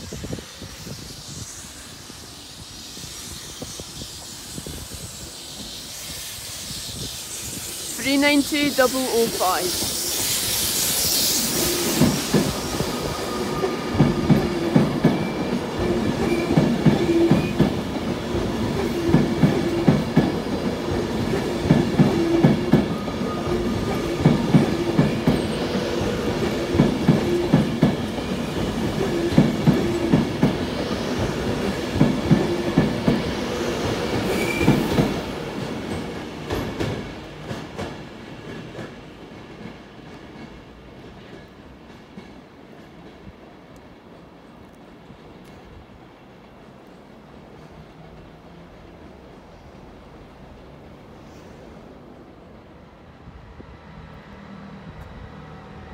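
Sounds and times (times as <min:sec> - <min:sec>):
train wheels clattering: 0:09.4 - 0:43.4.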